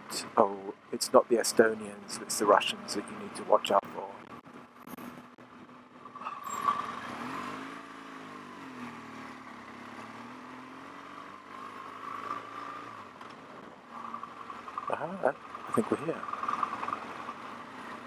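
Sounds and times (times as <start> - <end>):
motorcycle engine running: 13.9 - 18.0.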